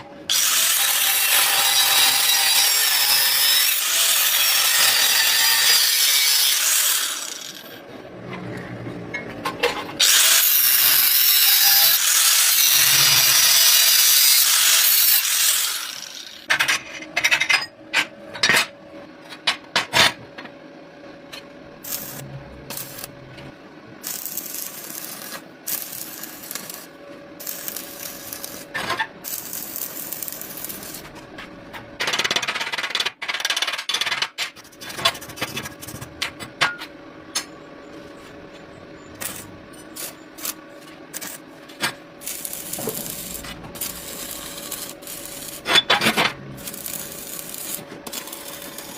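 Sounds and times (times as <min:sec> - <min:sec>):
angle grinder grinding metal: 0:00.3 - 0:07.8, 0:10.0 - 0:16.5, 0:42.2 - 0:48.9.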